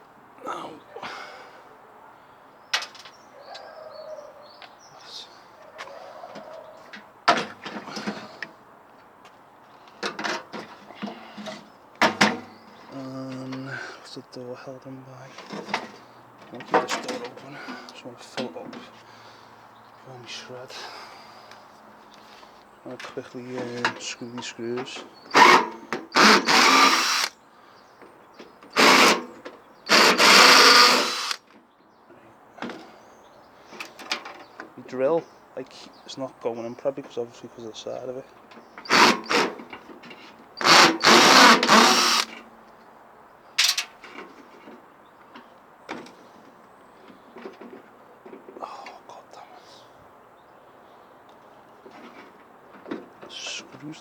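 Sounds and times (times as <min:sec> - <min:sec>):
microwave parts knocking and clattering: 0:12.0 - 0:12.6
power drill whirring: 0:25.3 - 0:27.3, 0:28.8 - 0:29.3, 0:29.9 - 0:31.4, 0:38.9 - 0:39.6, 0:40.6 - 0:42.3.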